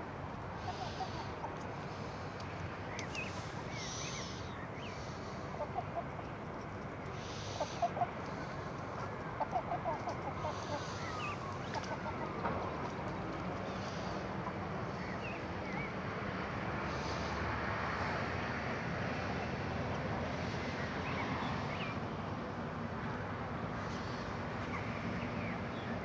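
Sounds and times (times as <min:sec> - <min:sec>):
chickens clucking: 0:09.4 - 0:13.2.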